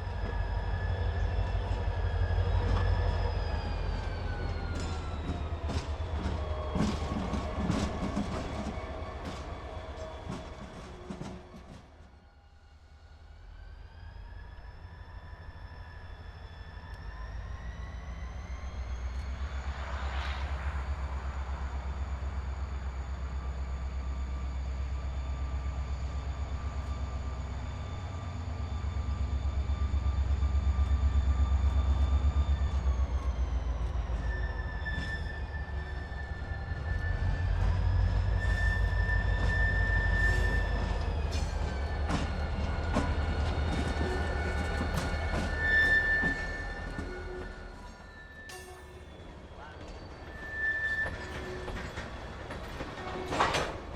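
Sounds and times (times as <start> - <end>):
diesel locomotive engine rumble: 0.0 - 53.9
steel wheels squealing: 14.1 - 53.9.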